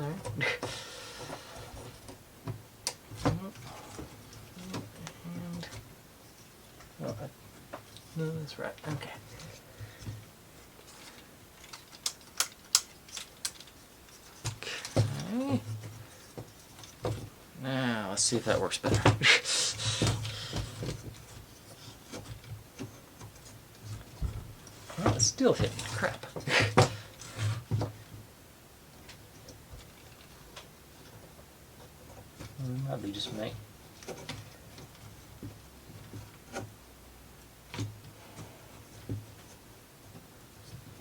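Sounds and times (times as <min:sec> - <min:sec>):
wood rubbing: 0:00.0 - 0:28.3
wooden parts clicking: 0:08.8 - 0:17.4.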